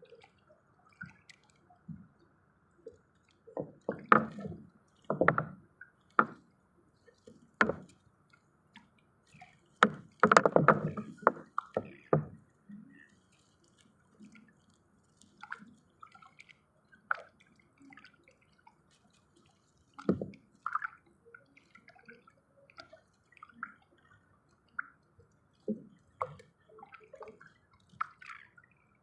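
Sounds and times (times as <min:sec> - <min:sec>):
dripping water: 0:02.8 - 0:28.9
knocks and wet thuds: 0:03.6 - 0:05.6, 0:07.6 - 0:07.9, 0:09.8 - 0:12.4.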